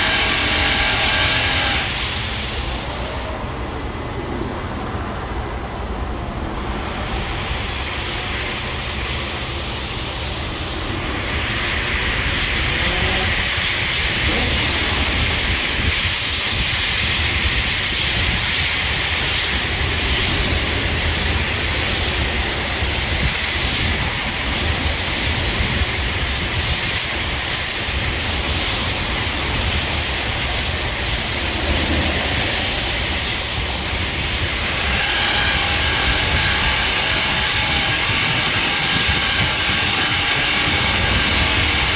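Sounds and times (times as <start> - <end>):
machine whine: 0.0 - 3.3, 6.8 - 41.9
water jets spraying vehicle: 0.0 - 41.9.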